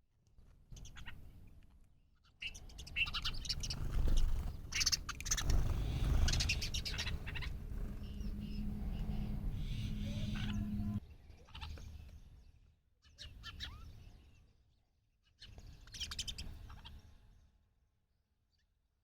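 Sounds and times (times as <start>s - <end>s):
small bird chirping: 0.6s - 17.6s
steady low hum: 5.3s - 11.0s.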